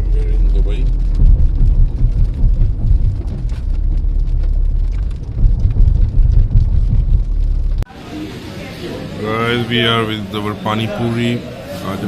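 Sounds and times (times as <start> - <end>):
car road noise rumble: 0.0 - 7.9
raindrops hitting car: 0.0 - 7.9.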